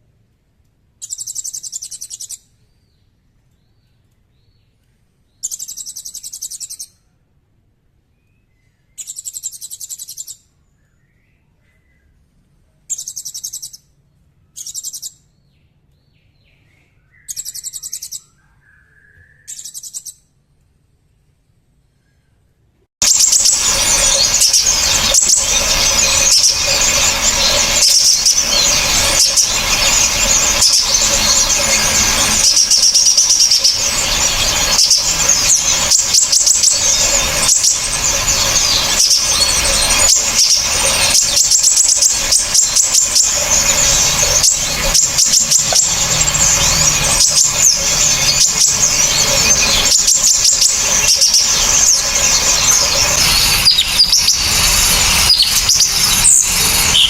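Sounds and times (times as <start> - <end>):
songbirds giving harsh calls: 23.0 - 57.0.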